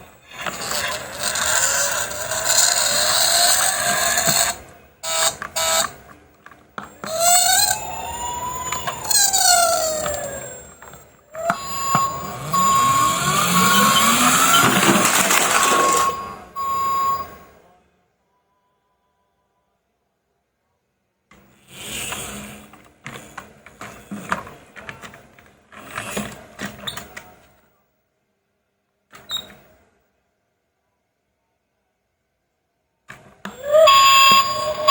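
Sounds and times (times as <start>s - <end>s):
electronic siren-like wailing: 7.2s - 17.4s, 33.6s - 34.9s
steady beeping tone: 10.2s - 17.6s, 33.6s - 34.9s.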